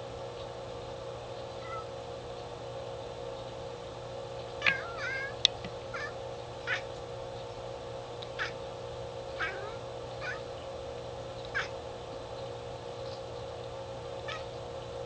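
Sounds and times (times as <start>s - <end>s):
steady low hum: 0.0s - 15.0s
cat chattering: 1.6s - 1.9s, 4.6s - 6.9s, 8.3s - 8.6s, 9.4s - 10.5s, 11.4s - 11.8s, 14.2s - 14.6s.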